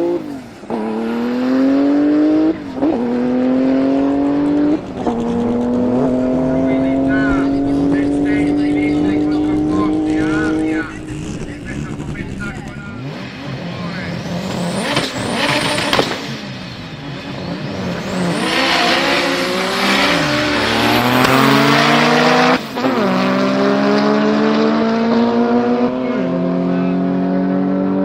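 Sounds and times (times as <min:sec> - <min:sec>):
car engine accelerating hard: 0:00.0 - 0:28.0
engine revving with crackles: 0:00.0 - 0:28.0.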